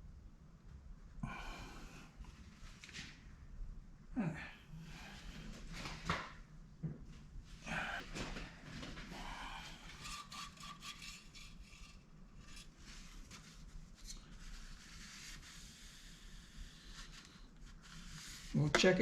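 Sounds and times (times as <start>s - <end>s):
parts and tools scraping: 9.0s - 14.3s.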